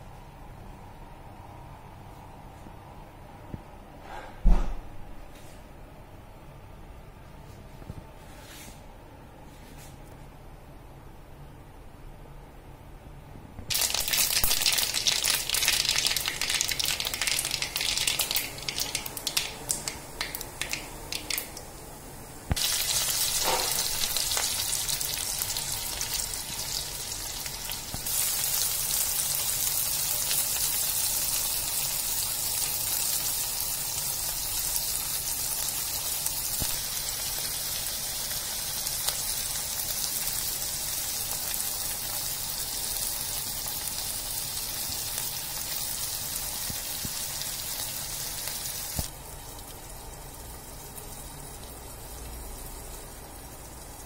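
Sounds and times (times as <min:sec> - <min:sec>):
mustard seeds popping in oil: 0:13.7 - 0:21.8, 0:22.5 - 0:28.9
oil sizzling in pan: 0:13.7 - 0:54.0.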